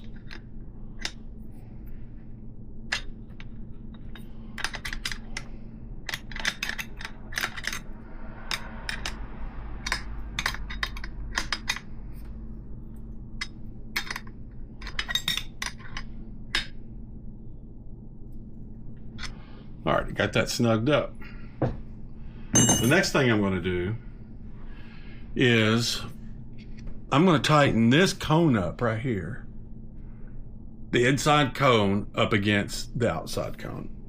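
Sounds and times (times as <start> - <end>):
wrench clinking on axle nut: 22.6 - 23.0.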